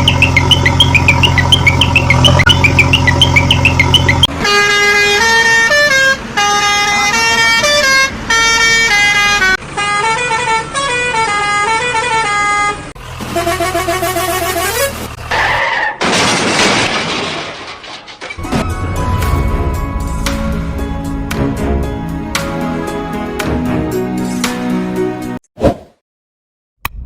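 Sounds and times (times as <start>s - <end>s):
vehicle engine running: 0.0s - 4.3s.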